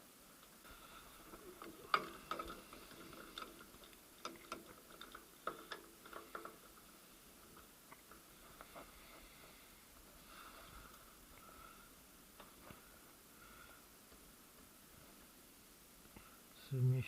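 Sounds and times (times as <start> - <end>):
light metallic clicks and clinks: 0.6 - 9.2.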